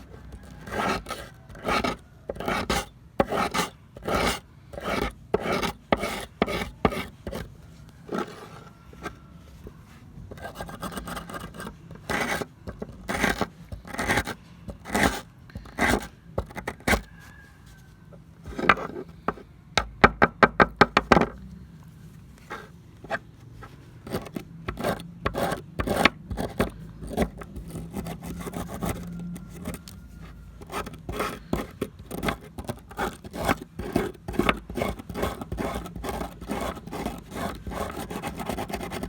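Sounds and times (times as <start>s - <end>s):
rasping strokes on metal: 0.4s - 7.4s.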